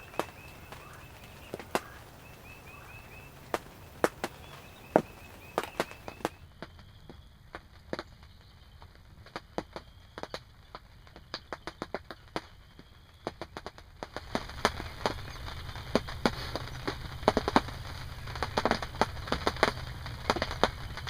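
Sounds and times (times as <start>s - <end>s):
steady rain hiss: 0.0s - 6.4s, 14.3s - 21.0s
raindrops hitting fabric: 0.0s - 6.5s, 13.2s - 21.0s.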